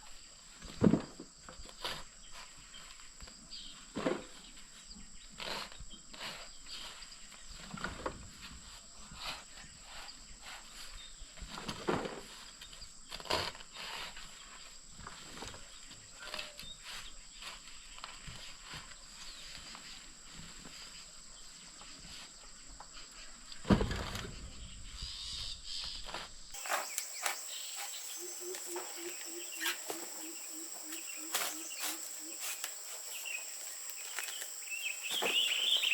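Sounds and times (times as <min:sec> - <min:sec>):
high-pitched whine: 0:26.6 - 0:35.9.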